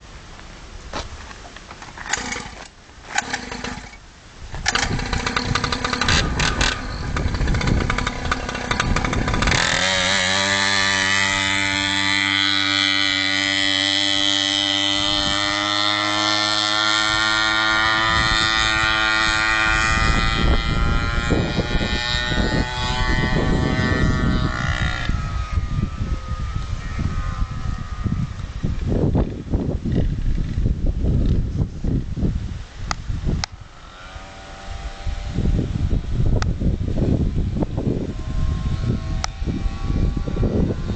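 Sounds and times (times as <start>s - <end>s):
dirt bike engine revving: 1.8s - 30.8s, 33.5s - 40.9s
engine knocks: 4.6s - 10.2s.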